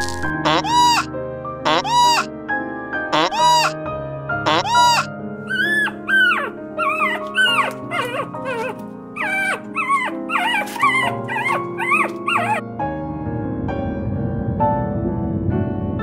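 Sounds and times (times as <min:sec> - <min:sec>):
puppies whining and yipping: 0:00.0 - 0:01.1, 0:01.7 - 0:02.3, 0:03.2 - 0:03.8, 0:04.5 - 0:12.6.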